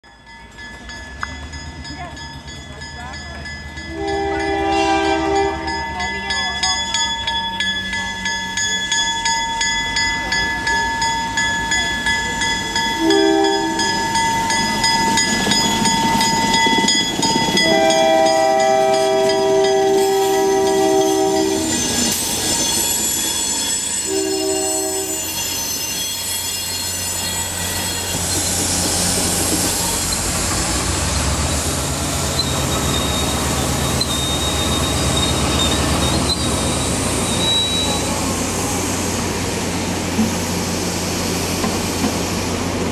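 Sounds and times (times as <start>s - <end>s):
level-crossing bell ringing: 0.0s - 28.2s
train wheels rumbling on rail: 0.2s - 42.9s
train horn blasts: 3.9s - 5.8s, 13.0s - 14.0s, 17.6s - 21.9s, 24.0s - 25.4s
high wheel squeal: 12.7s - 30.3s, 32.1s - 38.4s.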